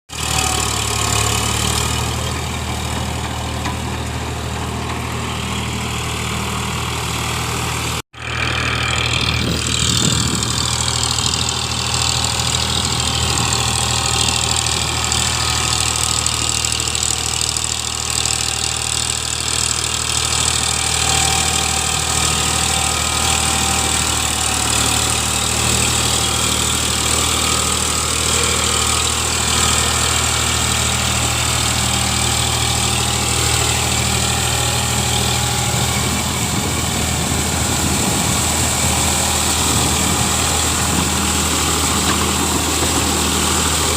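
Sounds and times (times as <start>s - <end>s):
tractor diesel engine idling: 0.1s - 43.9s.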